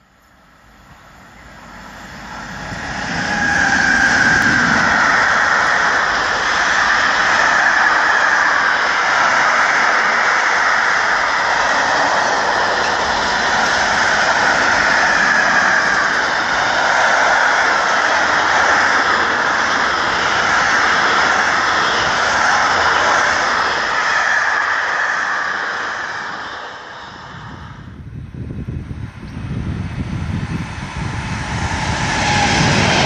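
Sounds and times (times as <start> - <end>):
freight train passing: 0.0 - 33.0.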